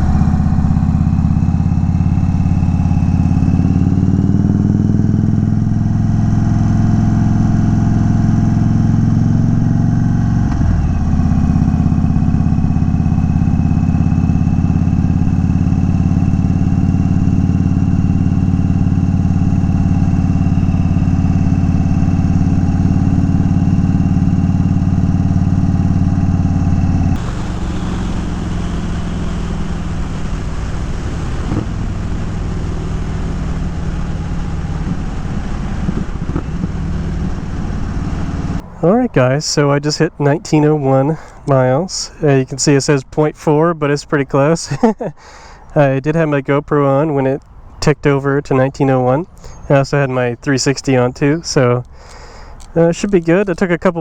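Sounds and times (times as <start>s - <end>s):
motorcycle engine running: 0.0s - 39.4s, 44.7s - 45.1s.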